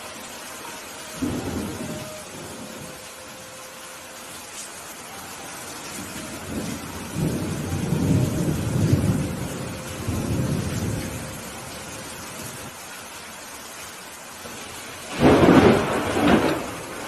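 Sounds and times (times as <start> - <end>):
rain hiss: 0.0 - 17.0
rolling thunder: 1.2 - 3.0, 6.0 - 12.7, 14.5 - 17.0.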